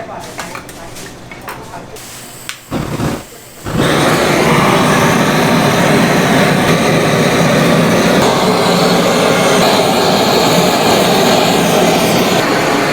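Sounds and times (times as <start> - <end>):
loud steady rushing roar: 3.7 - 12.9.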